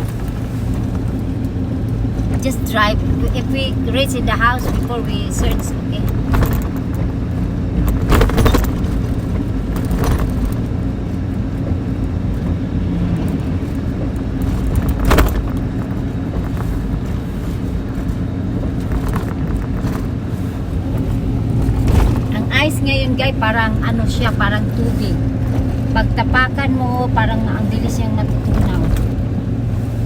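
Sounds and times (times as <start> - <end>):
truck engine and road rumble: 0.0 - 30.0
short knocks and rattles: 4.4 - 10.8, 13.3 - 22.4.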